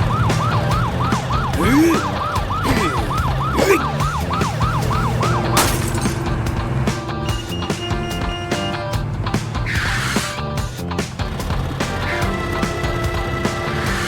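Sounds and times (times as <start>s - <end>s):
cartoon police siren yelping: 0.0s - 5.6s
music: 0.0s - 14.0s
crash: 4.9s - 6.6s.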